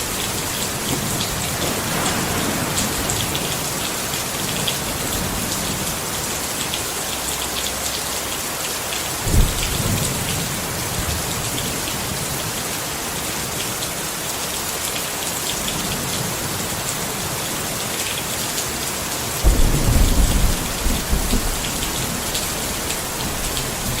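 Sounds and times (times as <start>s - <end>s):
low thunder rumbling: 0.0s - 6.2s, 19.4s - 24.0s
rain falling on a tent: 0.0s - 24.0s.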